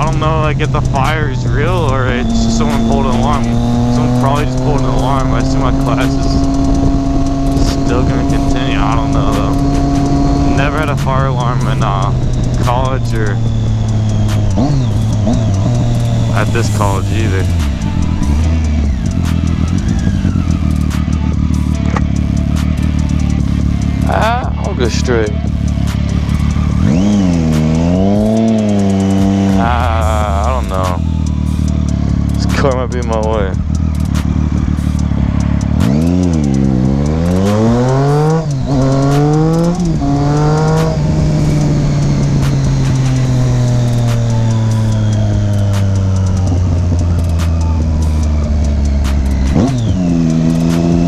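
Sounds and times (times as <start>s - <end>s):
road noise: 0.0s - 51.0s
vehicle engine running: 0.0s - 51.0s.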